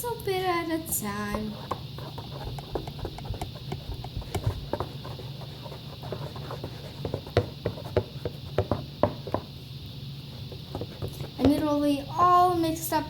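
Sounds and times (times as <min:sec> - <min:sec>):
slime squelching while stirred: 0:00.9 - 0:11.5
tool knocking against bowl: 0:01.2 - 0:05.0, 0:07.0 - 0:09.5.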